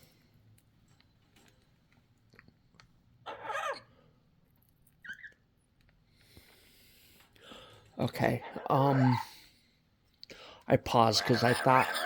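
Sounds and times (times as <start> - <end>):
parrot calling: 3.2 - 3.9, 8.3 - 9.5, 11.0 - 12.0
parrot chirp: 3.2 - 3.9, 5.0 - 5.4, 11.2 - 12.0.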